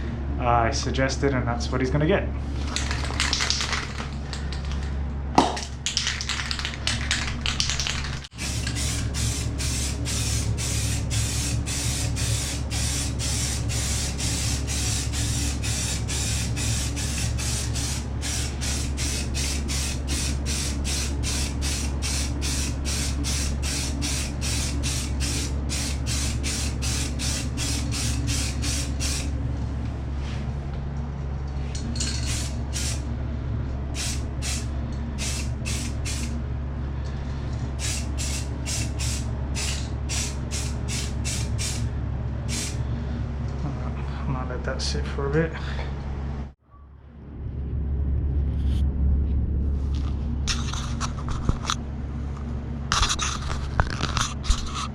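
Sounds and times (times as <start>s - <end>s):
aerosol spray can hissing: 6.6s - 29.3s, 32.3s - 33.0s, 34.0s - 36.4s, 37.8s - 41.8s, 42.5s - 42.8s.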